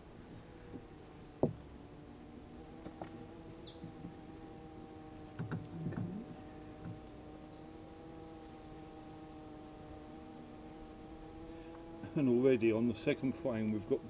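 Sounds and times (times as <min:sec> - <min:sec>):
bees humming: 0:00.0 - 0:14.0
small bird chirping: 0:02.0 - 0:07.7.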